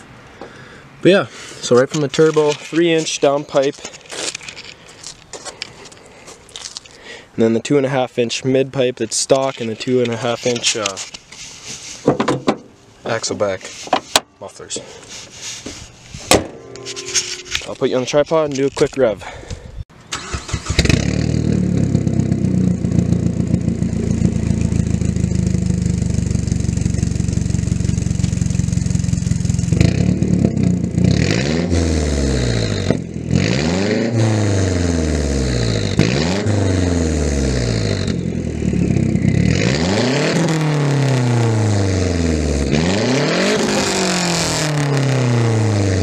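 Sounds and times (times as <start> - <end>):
car engine revving: 20.2 - 46.0
car engine idling: 21.2 - 29.7.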